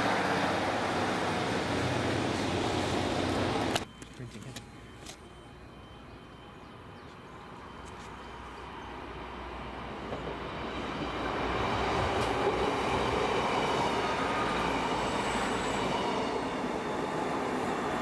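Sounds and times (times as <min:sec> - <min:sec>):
diesel train running: 0:00.0 - 0:18.0.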